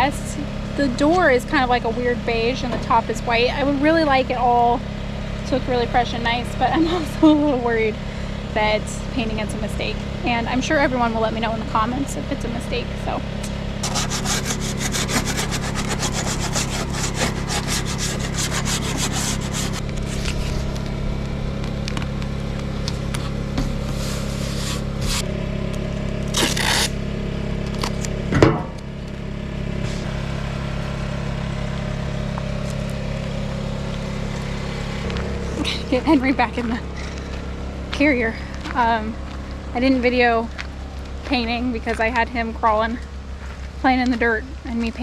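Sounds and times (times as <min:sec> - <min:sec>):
low mechanical hum: 0:00.0 - 0:45.0
rubbing and scraping strokes: 0:13.8 - 0:20.8, 0:23.2 - 0:25.3.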